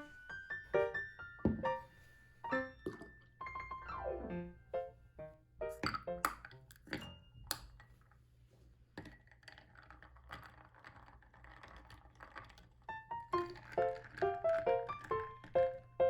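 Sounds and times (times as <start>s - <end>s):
piano music: 0.0s - 7.4s, 13.0s - 16.0s.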